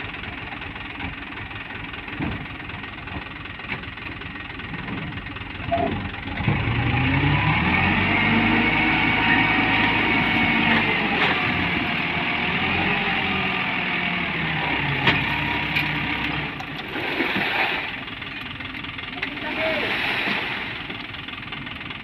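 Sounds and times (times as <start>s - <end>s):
truck diesel engine under load: 0.0s - 22.0s.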